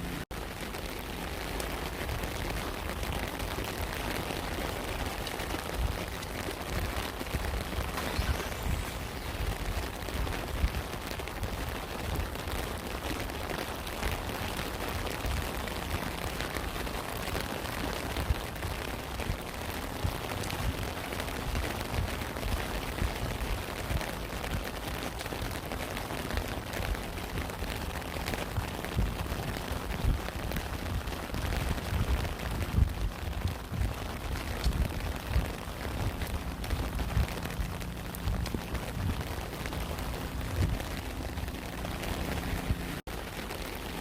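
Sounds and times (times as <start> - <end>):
steady rain hiss: 0.0 - 44.0
low rumble: 5.8 - 12.2, 26.3 - 43.0.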